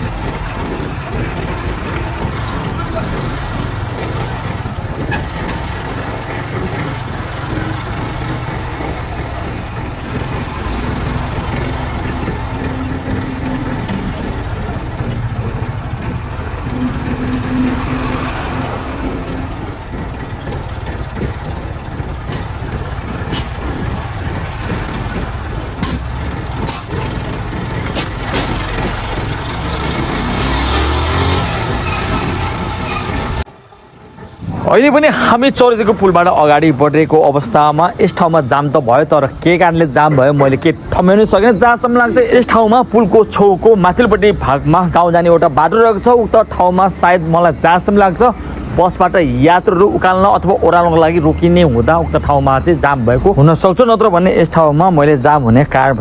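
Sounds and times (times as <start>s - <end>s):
truck and bus engines idling: 0.0s - 56.0s
low drone: 10.0s - 25.2s.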